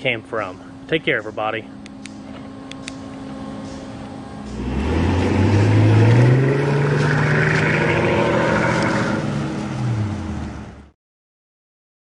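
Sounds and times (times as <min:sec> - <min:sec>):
car engine revving: 0:04.4 - 0:10.9.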